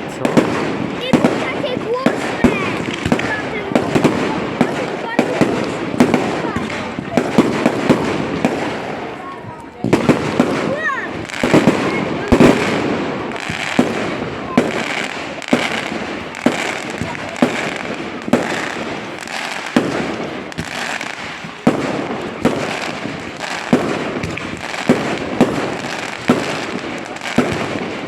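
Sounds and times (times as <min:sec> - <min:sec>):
fireworks bangs: 0:00.0 - 0:28.0
fireworks crackle and hiss: 0:00.0 - 0:28.0.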